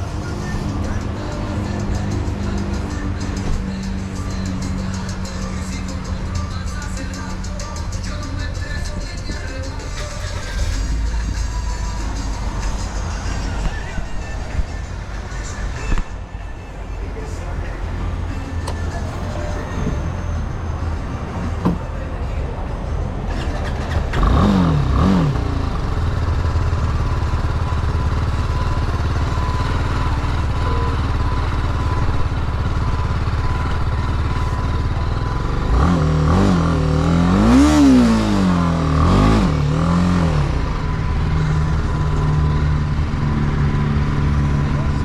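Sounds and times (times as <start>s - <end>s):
motorcycle engine revving: 9.5s - 16.2s, 23.3s - 45.0s.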